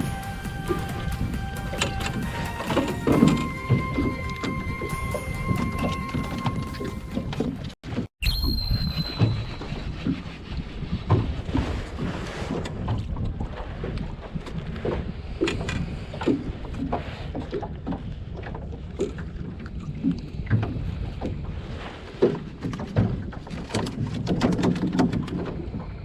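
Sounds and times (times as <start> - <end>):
water slapping against boat hull: 22.1 - 25.9.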